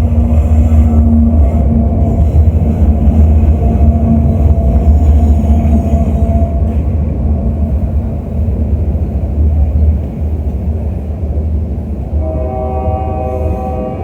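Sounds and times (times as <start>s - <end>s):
diesel locomotive rumbling past: 0.0s - 14.0s.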